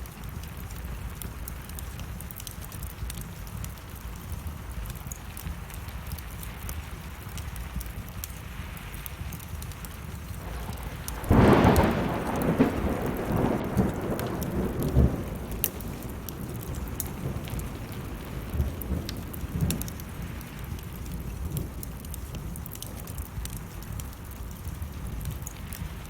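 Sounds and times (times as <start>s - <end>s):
small crackles: 0.0s - 26.0s
steady rain: 0.0s - 26.0s
thunder clap rumbling: 10.4s - 22.1s.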